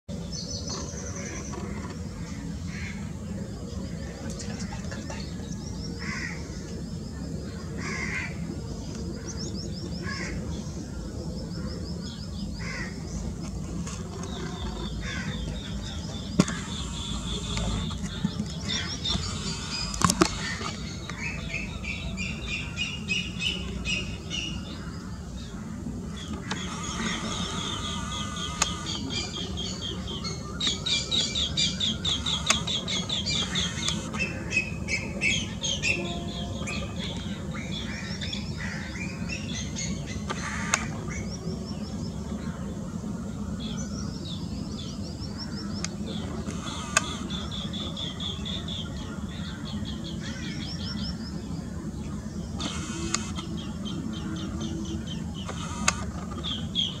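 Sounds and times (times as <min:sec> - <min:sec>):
birds trilling and chirping: 0:00.1 - 0:57.0
steady low rumble: 0:00.1 - 0:57.0
sharp clicks: 0:32.1 - 0:34.2, 0:52.6 - 0:53.5, 0:55.4 - 0:56.6.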